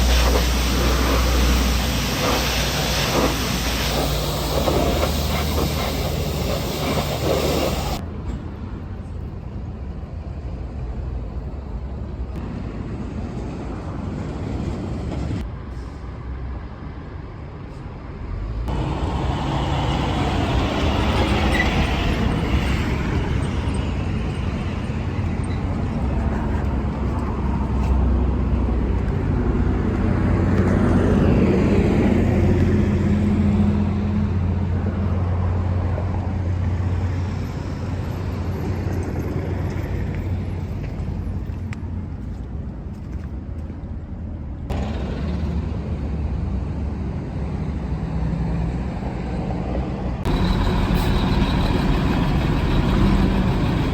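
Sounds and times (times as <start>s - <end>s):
low machine running: 0.0s - 8.0s, 50.3s - 53.9s
rushing spray-like hiss: 0.0s - 8.0s.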